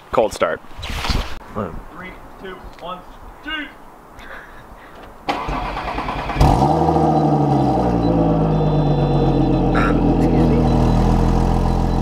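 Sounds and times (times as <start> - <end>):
starter motor cranking: 5.3 - 6.7
car engine starting and idling: 5.3 - 12.0.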